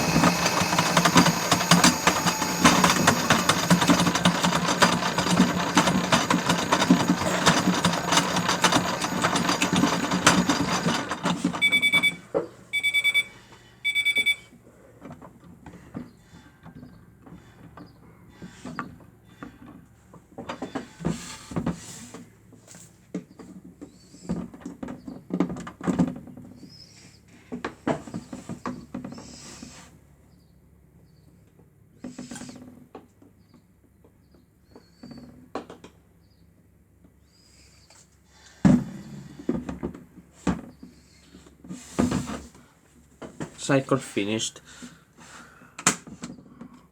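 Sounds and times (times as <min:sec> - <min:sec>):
toy washing machine motor: 0:00.0 - 0:12.2
short electronic beeps: 0:11.6 - 0:14.5.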